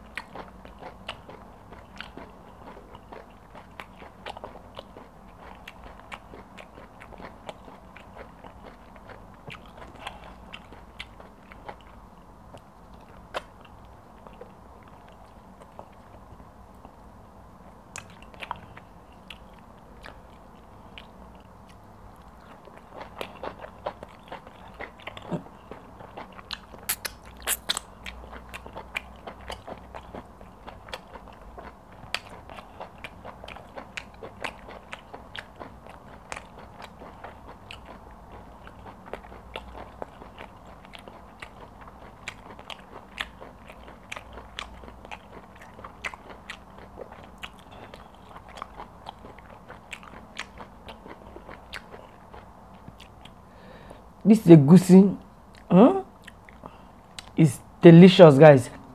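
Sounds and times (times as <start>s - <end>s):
wet chewing: 0.0s - 17.0s, 17.9s - 53.8s, 55.5s - 57.4s
lip smacks: 26.5s - 28.2s.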